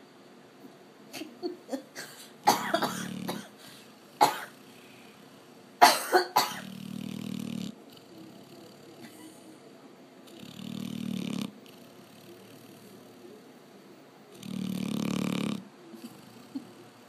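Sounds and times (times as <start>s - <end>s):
dog snoring with snorts: 3.0s - 3.4s, 6.6s - 9.1s, 10.3s - 13.0s, 14.3s - 16.9s.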